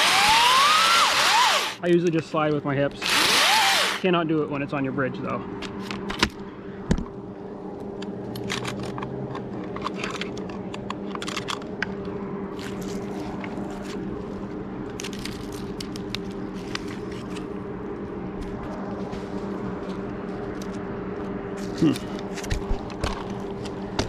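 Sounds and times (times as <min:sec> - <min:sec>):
climbing gear scraping bark: 0:00.0 - 0:01.8
steady low hum: 0:00.0 - 0:24.0.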